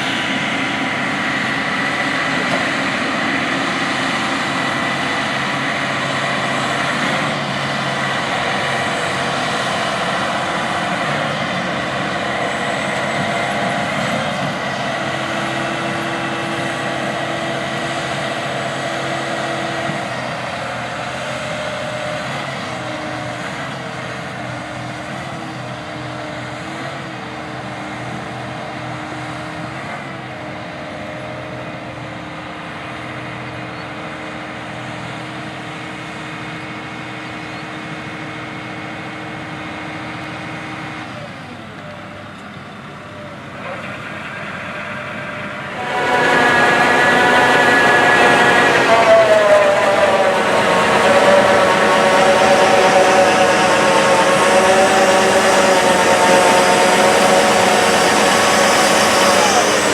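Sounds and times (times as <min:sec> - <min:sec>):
combine harvester engine drone: 0:00.0 - 0:59.9
high machine whine: 0:45.6 - 0:59.9.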